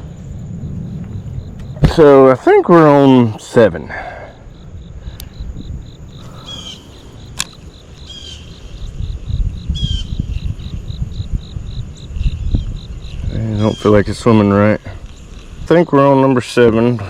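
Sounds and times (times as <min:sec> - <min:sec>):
low rumble: 0:00.0 - 0:02.5
insect chirping: 0:00.0 - 0:17.0
sharp clicks: 0:07.3 - 0:07.6.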